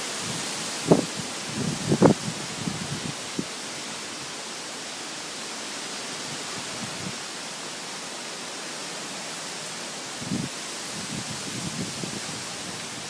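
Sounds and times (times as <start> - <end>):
thunderstorm winds rushing: 0.0 - 3.4, 10.2 - 13.0
faint low wind buffet: 0.0 - 4.4, 6.2 - 7.5, 10.0 - 13.0.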